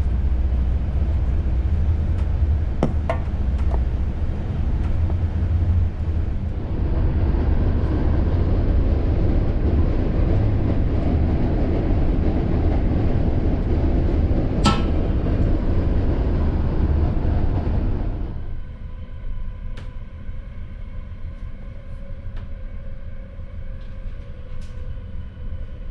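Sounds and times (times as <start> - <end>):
train wheels rumbling on rails: 0.0 - 18.6.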